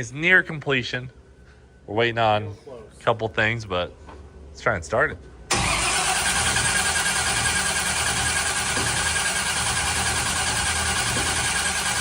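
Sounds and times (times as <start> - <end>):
engine cranked by starter: 5.5 - 12.0.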